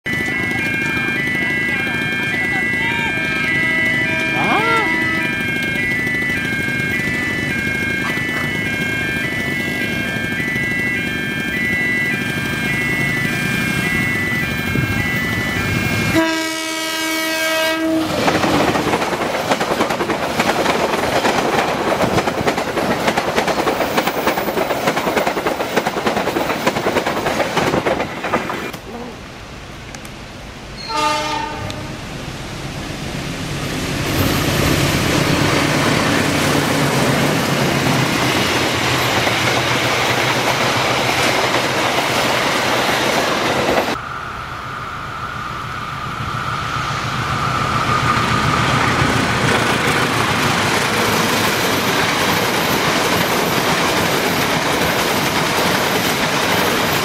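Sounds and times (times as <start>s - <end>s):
locomotive horn: 0.1s - 18.3s, 30.8s - 32.0s
train passing with rail clatter: 0.1s - 57.0s.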